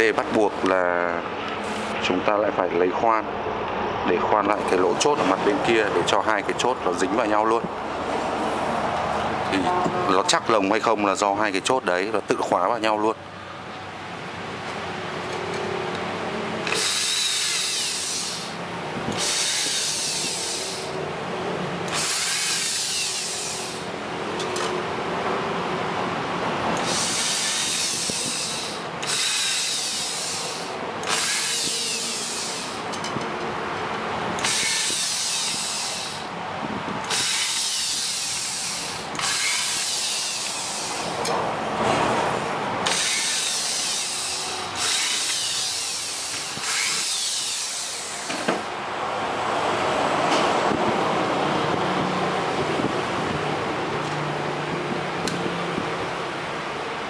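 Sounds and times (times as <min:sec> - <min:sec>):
electric drill running: 0:16.6 - 0:21.0, 0:21.9 - 0:23.9, 0:26.8 - 0:32.9, 0:34.4 - 0:36.3, 0:37.0 - 0:41.2, 0:42.8 - 0:48.7.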